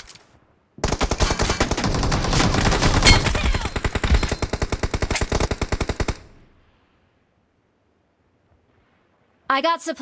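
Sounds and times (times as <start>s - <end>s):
video game automatic gunfire: 0.8s - 6.4s.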